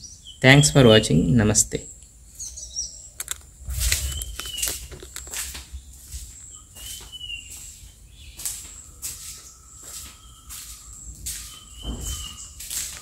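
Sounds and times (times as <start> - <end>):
small bird chirping: 0.0 - 1.1, 1.7 - 13.0
high insect drone: 2.2 - 13.0
camera handling clicks and knocks: 3.2 - 3.5.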